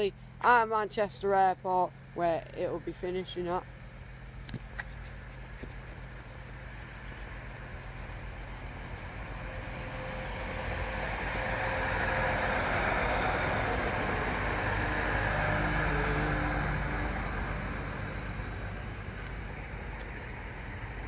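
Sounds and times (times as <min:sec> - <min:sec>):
passenger train approaching: 0:09.4 - 0:19.1.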